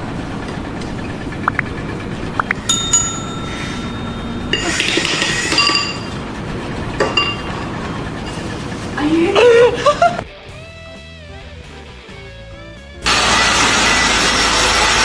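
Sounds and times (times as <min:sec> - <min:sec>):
sharp metallic clinks: 0:02.7 - 0:05.6.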